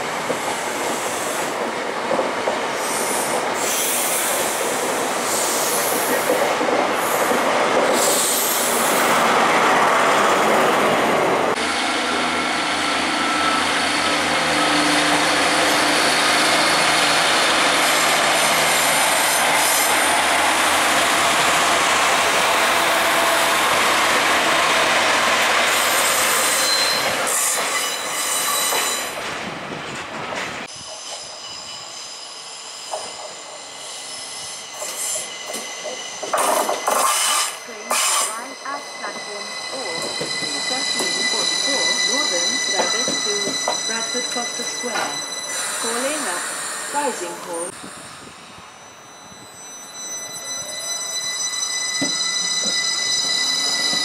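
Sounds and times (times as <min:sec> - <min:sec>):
electric train pulling in: 0:00.0 - 0:54.0
rail and wheel noise: 0:00.0 - 0:54.0
thin wheel squeal: 0:26.3 - 0:29.1
diesel train engine drone: 0:36.2 - 0:54.0.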